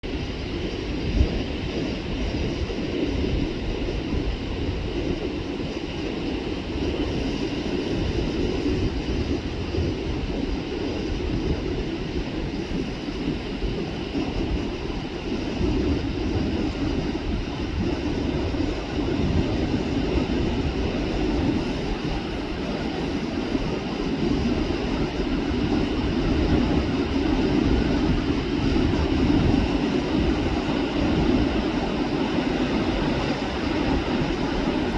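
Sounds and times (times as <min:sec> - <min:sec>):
wind buffeting microphone: 0:00.0 - 0:34.9
ocean surf rushing: 0:12.6 - 0:34.9.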